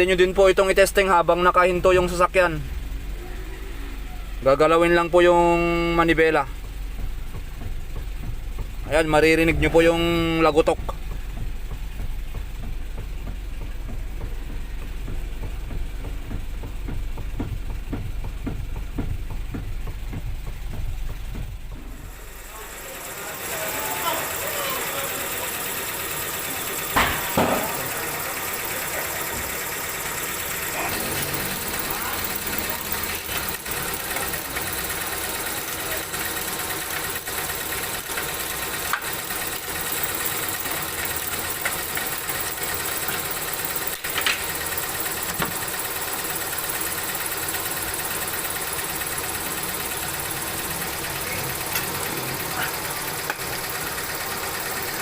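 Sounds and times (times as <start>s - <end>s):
steady mechanical hum: 0.0s - 55.0s
sharp knocks: 26.9s - 28.1s.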